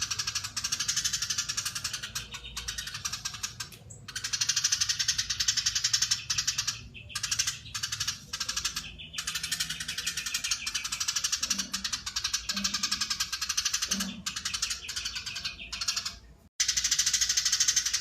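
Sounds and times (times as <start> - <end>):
sparrow chattering call: 0.0 - 18.0.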